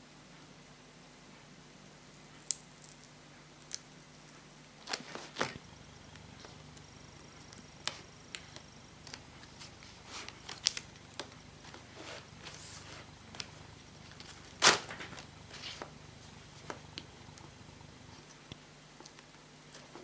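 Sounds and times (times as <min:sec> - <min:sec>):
plastic parts clicking and crackling: 0:02.5 - 0:20.0.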